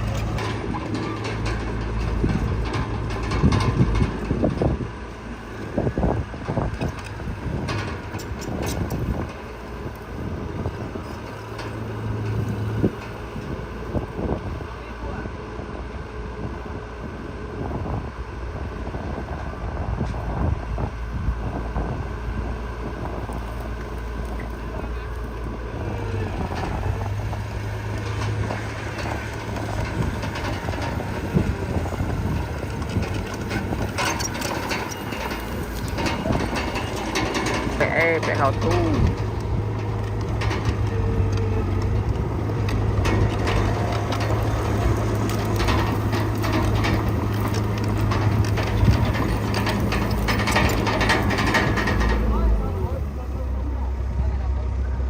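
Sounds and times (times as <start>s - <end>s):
heavy diesel machinery working: 0.0s - 55.0s
low engine hum: 0.0s - 55.0s
clattering: 26.4s - 53.0s
metallic clanks: 26.4s - 53.1s.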